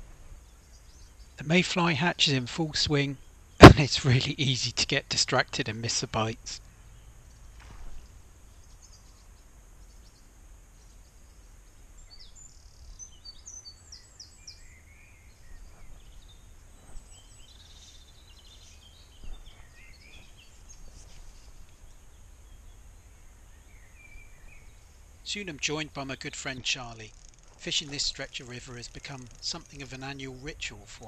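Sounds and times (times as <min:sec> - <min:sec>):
outdoor background noise: 0:00.0 - 0:31.0
songbirds chirping and singing: 0:06.8 - 0:31.0.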